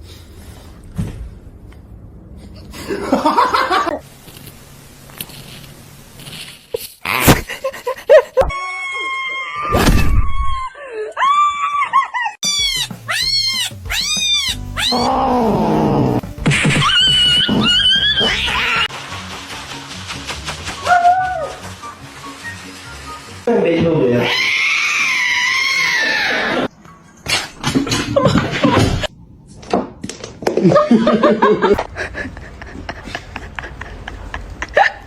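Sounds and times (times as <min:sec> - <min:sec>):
cats meowing and yowling: 0:12.4 - 0:16.2, 0:24.2 - 0:26.7
background music: 0:12.5 - 0:24.4.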